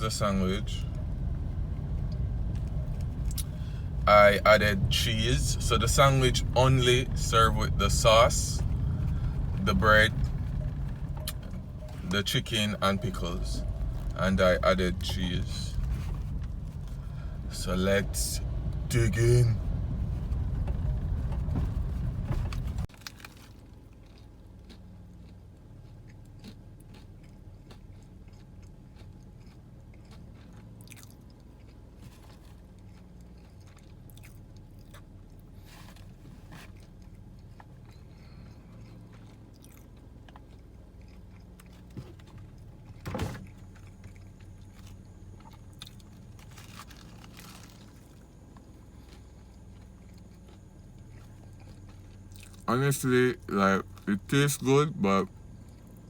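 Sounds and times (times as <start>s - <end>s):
low rumble: 0.0s - 22.9s
steady low hum: 0.0s - 22.9s, 34.2s - 56.0s
person chewing crunchy food: 22.8s - 52.7s.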